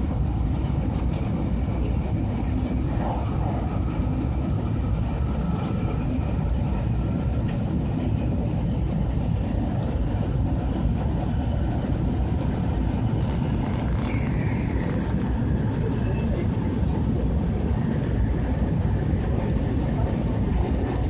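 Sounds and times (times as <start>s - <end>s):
train cabin low rumble: 0.0s - 21.0s.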